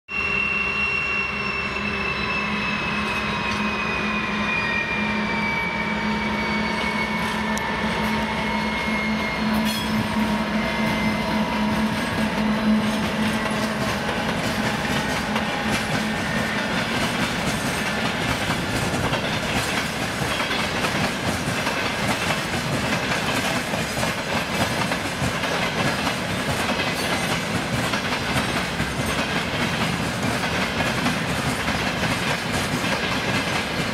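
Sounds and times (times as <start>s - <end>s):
diesel engines humming with whine: 1.1s - 16.8s
wheels clacking over rail joints: 9.6s - 33.9s.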